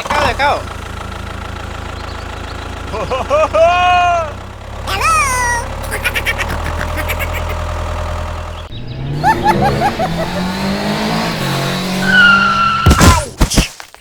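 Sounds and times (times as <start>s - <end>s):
engine running and revving: 0.0s - 4.9s, 7.4s - 13.3s
quick upward chirps: 4.9s - 7.6s.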